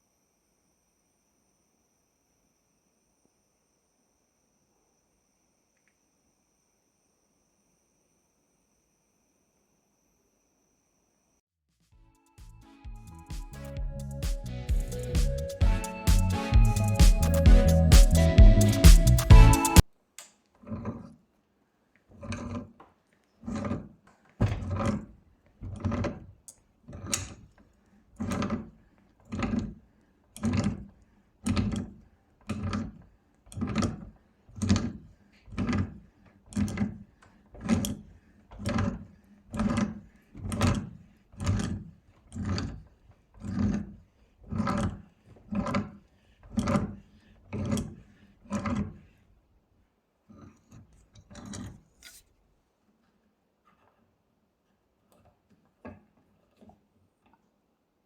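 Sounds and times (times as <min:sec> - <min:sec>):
rhythmic hand rubbing strokes: 0:12.2 - 0:19.8.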